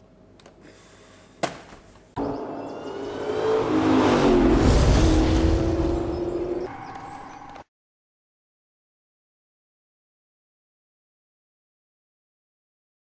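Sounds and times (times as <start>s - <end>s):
car engine revving hard: 2.2s - 6.6s.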